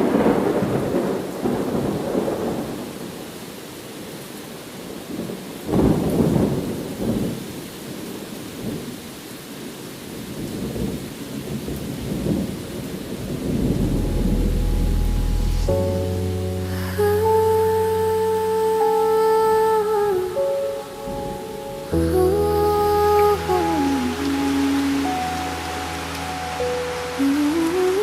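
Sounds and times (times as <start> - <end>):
rolling thunder: 0.0 - 3.1, 10.7 - 17.9
steady rain: 0.0 - 28.0.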